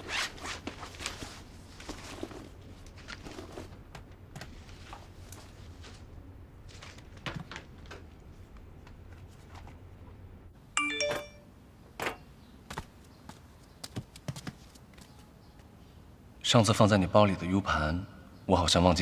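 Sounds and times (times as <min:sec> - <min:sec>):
two-note electronic chime: 0:10.8 - 0:11.5.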